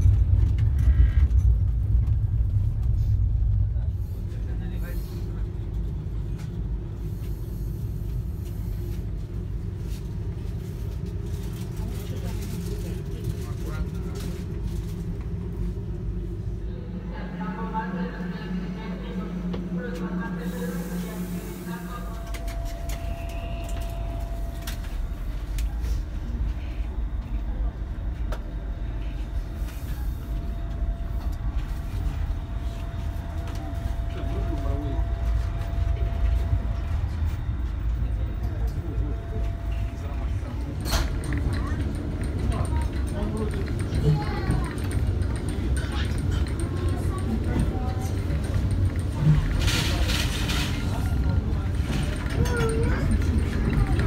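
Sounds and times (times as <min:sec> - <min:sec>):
train rumbling inside carriage: 0:00.0 - 0:54.0
faint steady whine: 0:13.4 - 0:42.7.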